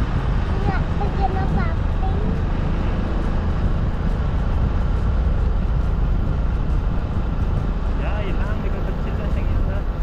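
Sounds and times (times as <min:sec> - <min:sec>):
vehicle rumble with road noise: 0:00.0 - 0:10.0
wind noise: 0:00.0 - 0:10.0.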